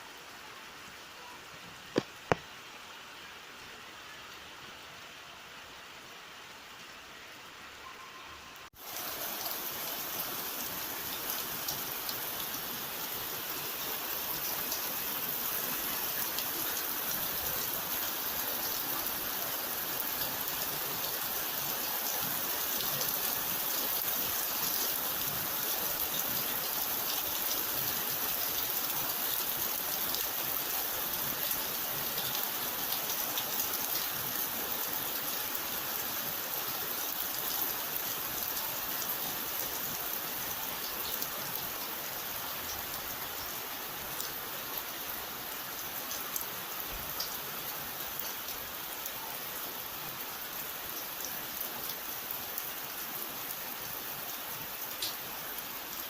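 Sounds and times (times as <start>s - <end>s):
steady rain hiss: 0.0s - 56.0s
raindrops ticking on a surface: 1.9s - 2.6s, 45.7s - 48.7s, 54.8s - 55.2s.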